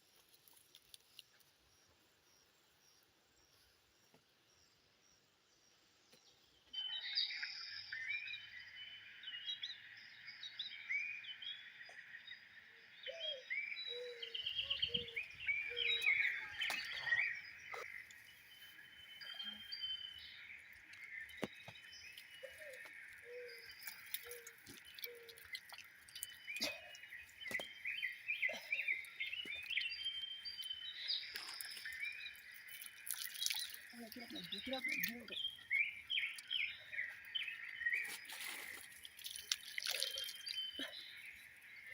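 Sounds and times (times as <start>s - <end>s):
birds chirping and calling: 12.8s - 41.9s.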